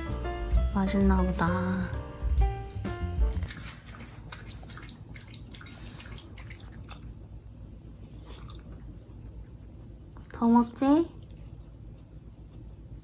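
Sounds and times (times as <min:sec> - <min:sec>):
pet chewing food: 0:03.4 - 0:07.2.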